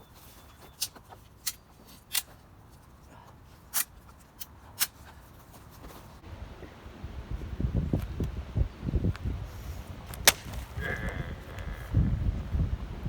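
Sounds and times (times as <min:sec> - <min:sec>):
firewood snapping: 0:10.1 - 0:11.0.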